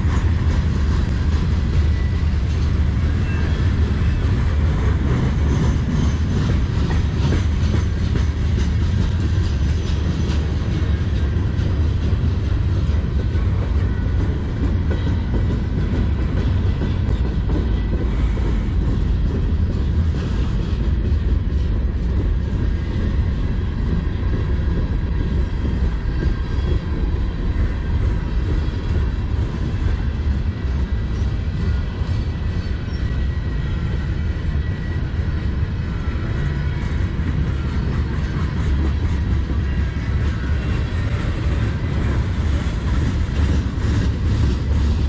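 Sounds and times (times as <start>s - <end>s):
steel wheels rumbling on rails: 0.0s - 45.0s.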